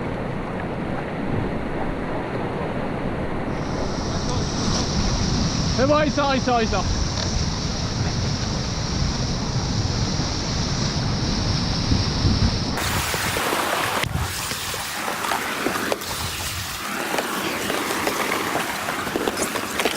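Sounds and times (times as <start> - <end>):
wind buffeting microphone: 0.0 - 19.9
rushing river water: 12.8 - 19.9
water knocks and splashes: 12.8 - 19.9.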